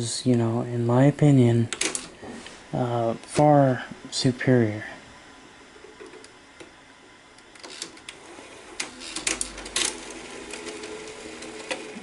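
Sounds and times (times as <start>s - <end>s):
faint motor hum: 0.0s - 12.0s
mechanism clicking and clattering: 7.4s - 8.2s, 8.8s - 10.7s.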